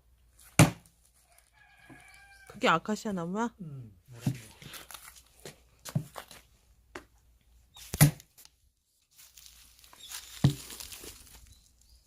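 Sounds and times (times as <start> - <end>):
axe chopping firewood: 0.4 - 1.0, 7.9 - 8.4.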